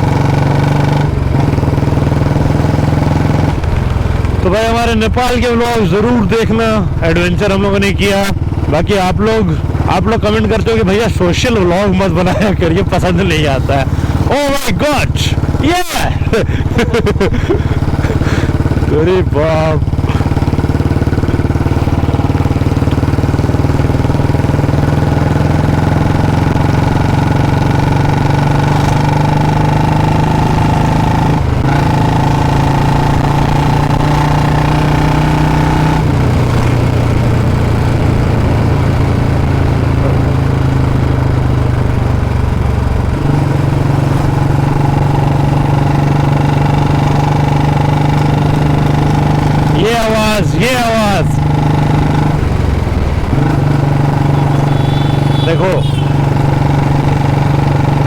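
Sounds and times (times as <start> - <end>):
motorcycle engine exhaust beat: 0.0 - 58.0.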